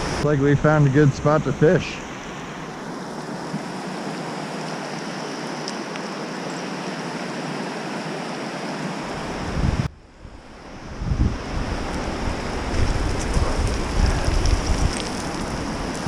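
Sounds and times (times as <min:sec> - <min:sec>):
wind buffeting microphone: 0:09.2 - 0:16.0.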